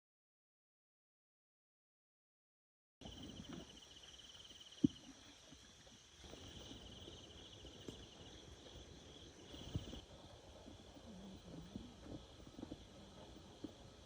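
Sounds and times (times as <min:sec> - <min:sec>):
insects trilling buzz: 0:03.0 - 0:14.0.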